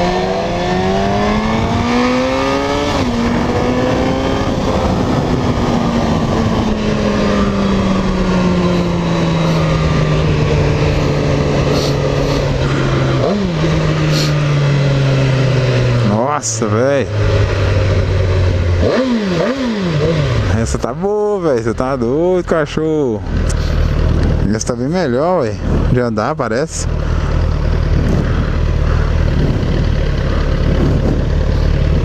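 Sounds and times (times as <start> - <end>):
wind noise: 0.0 - 16.1, 27.0 - 32.0
motorcycle engine revving: 0.0 - 32.0.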